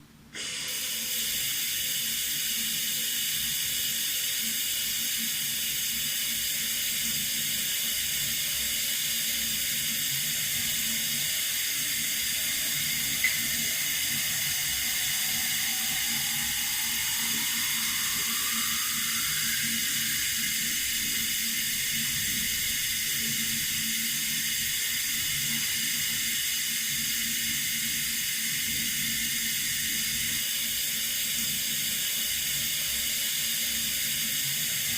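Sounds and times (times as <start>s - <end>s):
water running from a tap: 0.4s - 34.9s
faint rising tone: 11.1s - 22.6s.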